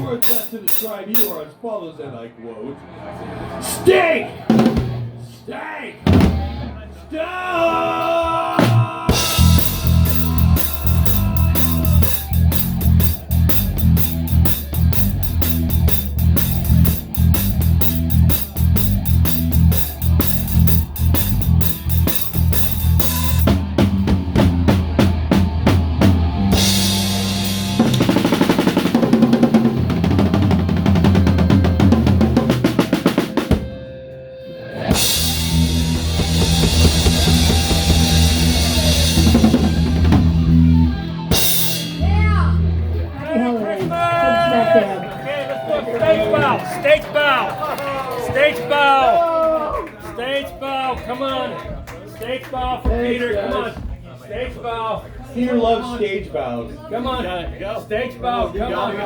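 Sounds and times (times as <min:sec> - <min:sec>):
crashing cymbals: 0:00.0 - 0:01.4, 0:09.2 - 0:23.5
drum rolls: 0:00.0 - 0:01.4, 0:04.5 - 0:05.2, 0:08.6 - 0:33.8, 0:34.9 - 0:42.2
live rock band: 0:08.6 - 0:43.2.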